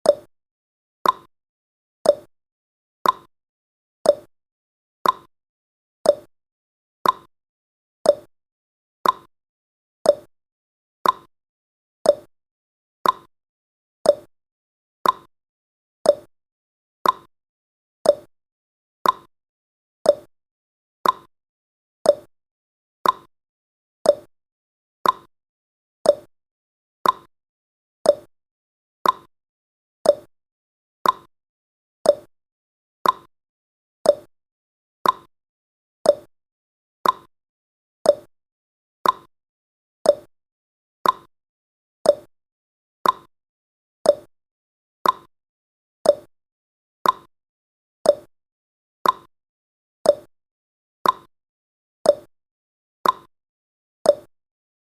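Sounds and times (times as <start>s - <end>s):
countdown timer ticking: 28.1s - 28.3s, 30.1s - 30.3s, 32.1s - 32.3s, 34.1s - 34.3s, 36.1s - 36.3s, 37.0s - 37.3s, 38.1s - 38.3s, 40.1s - 40.3s, 42.1s - 42.3s, 44.1s - 44.3s, 46.1s - 46.3s, 48.1s - 48.3s, 50.1s - 50.3s.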